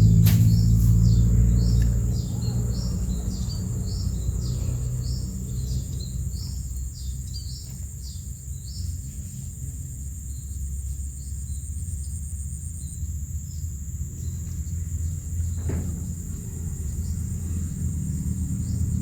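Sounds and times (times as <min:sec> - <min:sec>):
low rumble: 0:00.0 - 0:06.8.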